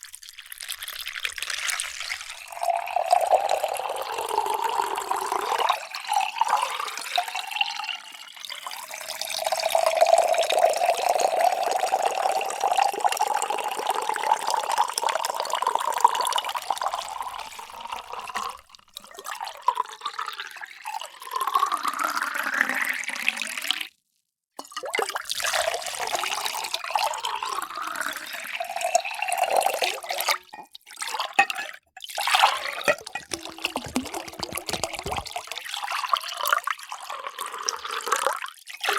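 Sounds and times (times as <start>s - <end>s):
water pouring into container: 0.0s - 23.9s, 24.6s - 38.9s.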